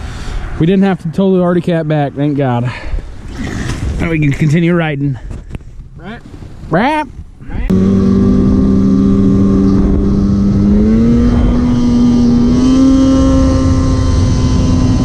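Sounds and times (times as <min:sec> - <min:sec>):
rough low rumble: 0:07.3 - 0:15.0
snowmobile engine running: 0:07.7 - 0:15.0.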